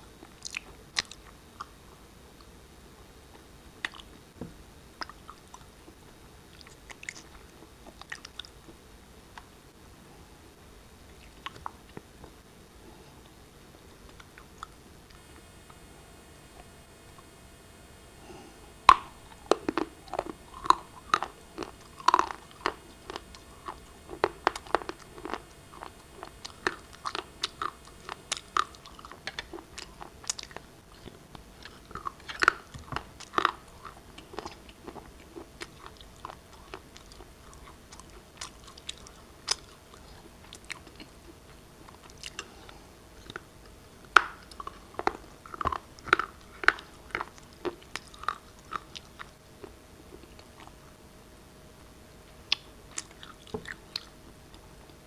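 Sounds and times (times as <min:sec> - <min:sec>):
person chewing brittle rock: 0:00.2 - 0:01.8, 0:03.3 - 0:04.1, 0:05.0 - 0:09.5, 0:18.8 - 0:50.8, 0:52.5 - 0:54.6.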